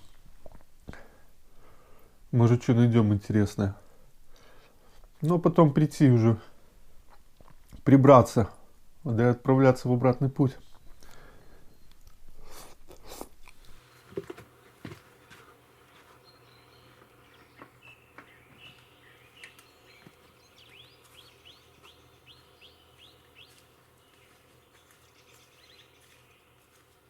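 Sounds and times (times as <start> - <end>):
faint songbirds calling: 10.4 - 12.2, 15.5 - 27.0
rustles and knocks: 14.0 - 16.2.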